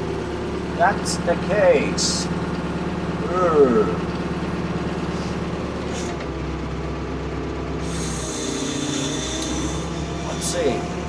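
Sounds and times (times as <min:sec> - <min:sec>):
excavator engine running: 0:00.0 - 0:11.0
hiss: 0:07.9 - 0:10.7.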